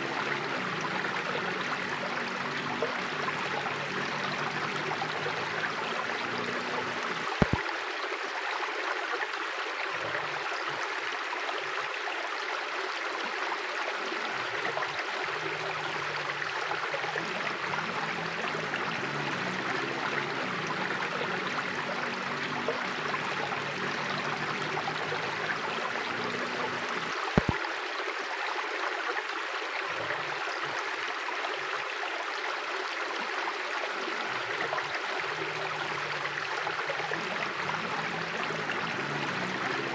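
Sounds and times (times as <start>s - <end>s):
river water flowing over stones: 0.0s - 39.9s
sharp clicks: 7.4s - 7.6s, 27.4s - 27.6s.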